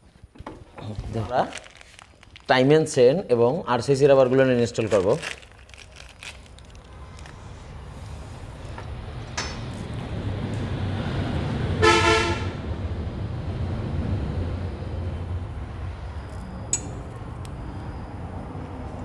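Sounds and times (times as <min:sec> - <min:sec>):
vehicle passing with low rumble: 0:05.5 - 0:19.0
short horn toot: 0:11.8 - 0:12.6.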